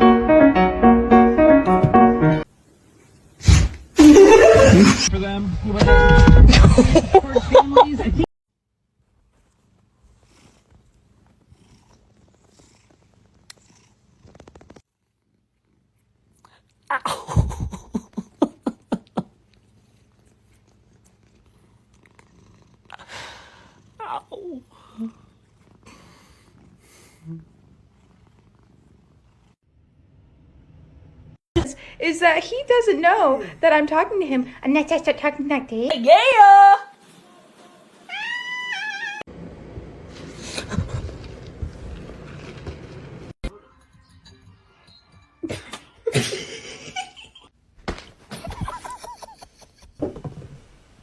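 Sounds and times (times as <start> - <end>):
rustling and handling noise: 8.9 - 14.9
cat vocalising: 23.8 - 25.8, 38.1 - 39.3
cat meowing: 38.1 - 39.3.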